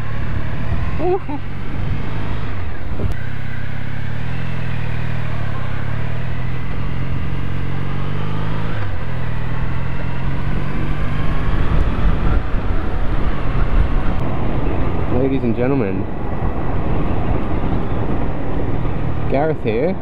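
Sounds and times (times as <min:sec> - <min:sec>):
motorcycle engine accelerating: 0:00.0 - 0:20.0
wind noise on microphone: 0:10.7 - 0:20.0.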